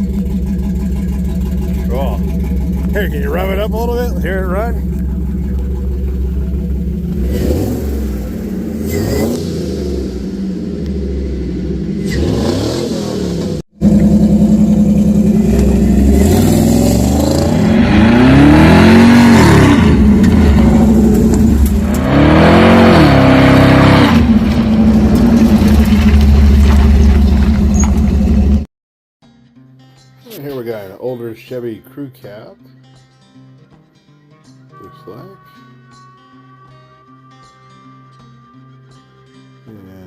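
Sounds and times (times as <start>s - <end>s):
pickup engine idling and revving: 0.0s - 28.6s.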